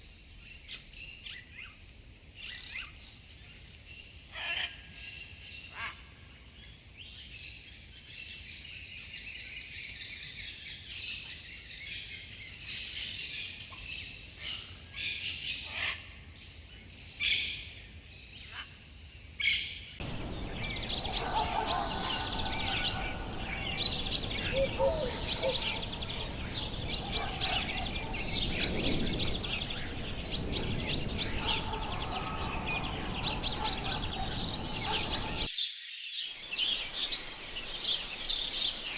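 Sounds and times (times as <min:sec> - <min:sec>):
background hiss: 0:20.0 - 0:35.5
high-pitched insect chorus: 0:20.0 - 0:35.5
lower whistled bird notes: 0:20.0 - 0:35.5
forest birds chirping: 0:20.0 - 0:38.9.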